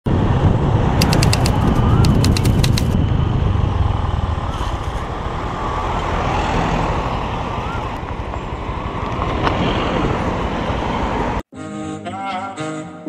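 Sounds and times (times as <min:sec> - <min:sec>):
wind on microphone: 0:00.1 - 0:05.6
motor scooter engine running: 0:01.0 - 0:03.0
sharp clicks: 0:01.0 - 0:03.0.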